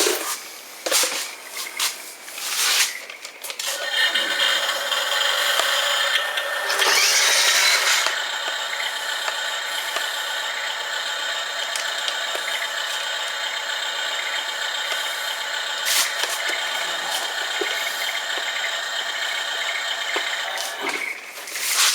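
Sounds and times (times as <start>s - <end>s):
toy truck electric motor whining: 3.4s - 21.9s
gearbox grinding: 3.7s - 8.9s, 11.6s - 21.9s.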